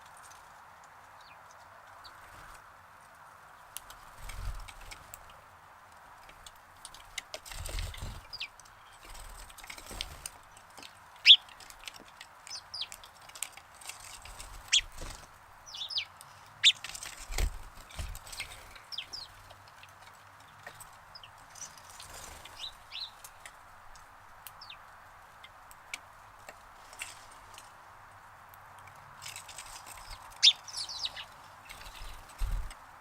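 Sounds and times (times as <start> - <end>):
steady background hiss: 0.0 - 33.0
sparrows chirping: 6.3 - 27.6, 29.2 - 33.0.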